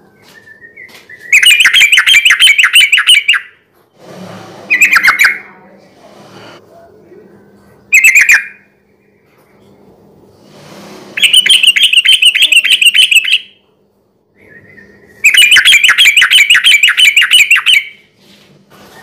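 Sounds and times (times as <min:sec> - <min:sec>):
bird chirping rapidly: 0:00.8 - 0:03.6, 0:04.7 - 0:05.5, 0:07.9 - 0:08.7, 0:11.2 - 0:13.6, 0:14.4 - 0:18.1.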